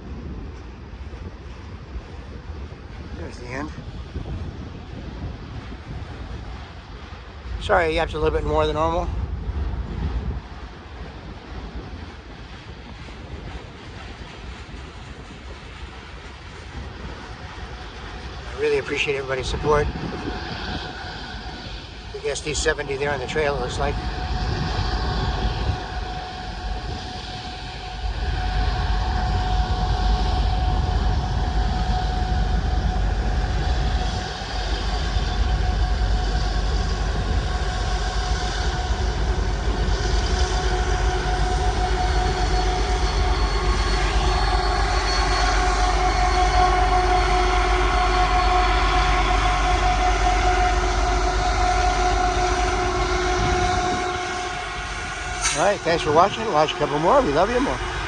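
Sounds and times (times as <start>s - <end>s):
diesel locomotive engine rumble: 0.0s - 58.0s
high whine: 16.8s - 58.0s.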